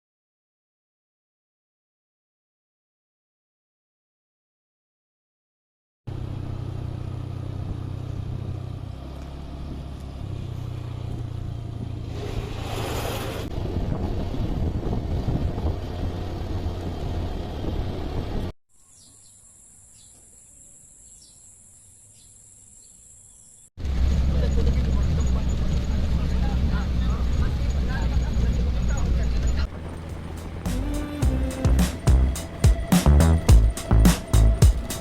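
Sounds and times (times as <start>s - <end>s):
road noise rushing: 6.1s - 18.5s, 23.8s - 35.0s
vehicle engine hum: 6.1s - 18.5s, 23.8s - 35.0s.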